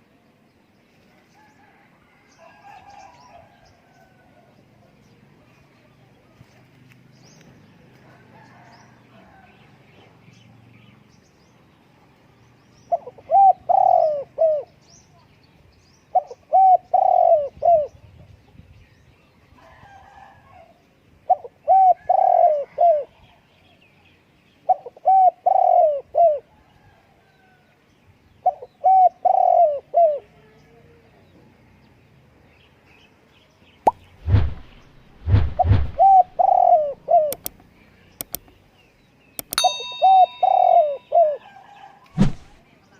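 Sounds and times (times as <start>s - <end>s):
dove cooing: 12.9s - 14.7s, 16.1s - 18.0s, 21.3s - 23.1s, 24.7s - 26.5s, 28.4s - 30.4s, 35.6s - 37.5s, 39.6s - 41.8s.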